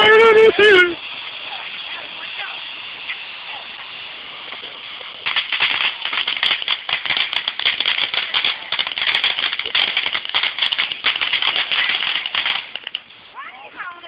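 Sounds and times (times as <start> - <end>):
fireworks crackling: 0.0 - 14.0.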